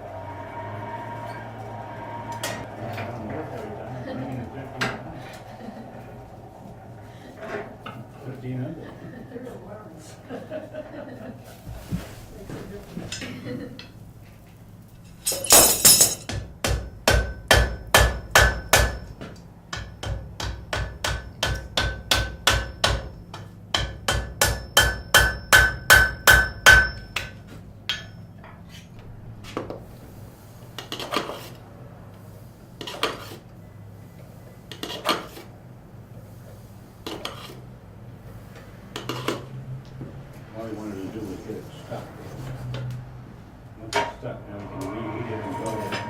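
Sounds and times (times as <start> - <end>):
hammer striking iron on anvil: 15.3 - 28.3.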